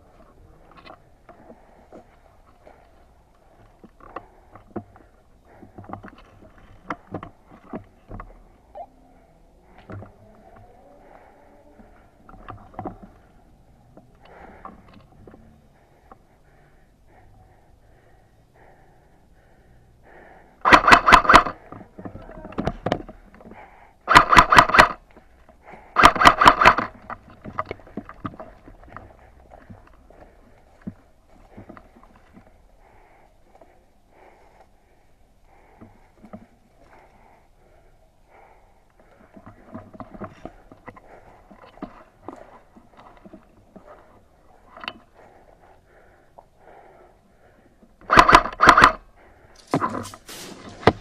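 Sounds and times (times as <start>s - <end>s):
faint background noise: 0.0s - 51.0s
airsoft gun firing bursts: 20.6s - 21.6s, 24.1s - 25.0s, 26.0s - 27.0s, 48.1s - 49.0s.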